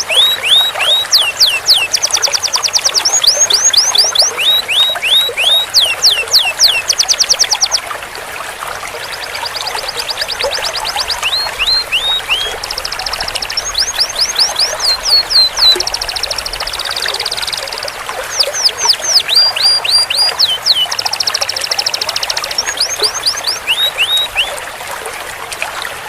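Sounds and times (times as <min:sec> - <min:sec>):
canary singing trills: 0:00.0 - 0:07.9, 0:09.0 - 0:24.6.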